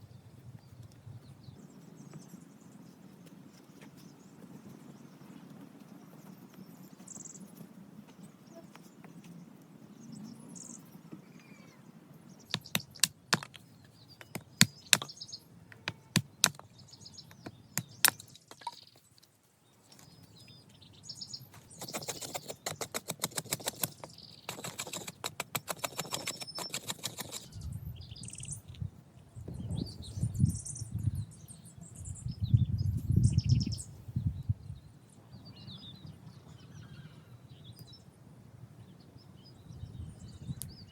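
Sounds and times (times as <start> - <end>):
faint birds chirping: 0.0 - 40.9
fast rasping strokes: 12.5 - 13.6, 14.2 - 15.1, 21.6 - 27.6
sharp knocks: 12.6 - 13.6, 14.2 - 15.2.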